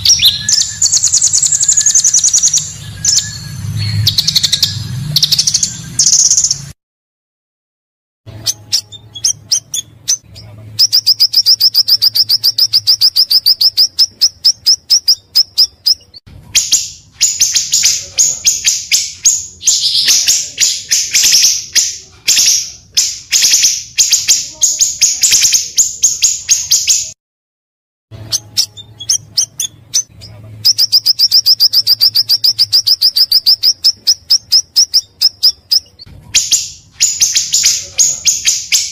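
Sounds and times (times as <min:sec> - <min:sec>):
bird chattering calls: 0:00.0 - 0:06.7, 0:08.3 - 0:27.2
bird trilling: 0:00.0 - 0:06.7, 0:08.3 - 0:27.2, 0:28.2 - 0:38.9.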